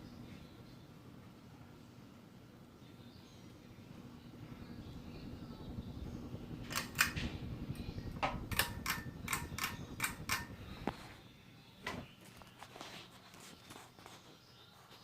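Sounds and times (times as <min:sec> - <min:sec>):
ceiling fan humming: 0:00.0 - 0:15.0
sharp clicks: 0:06.6 - 0:07.3, 0:08.2 - 0:11.0.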